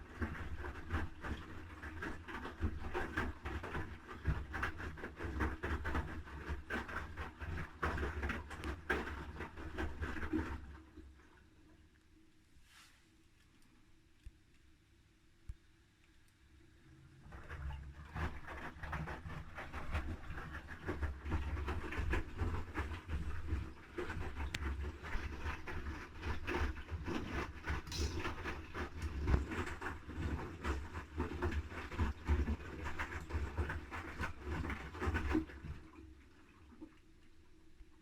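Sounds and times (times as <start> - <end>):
laundry and water sloshing: 17.2 - 37.2.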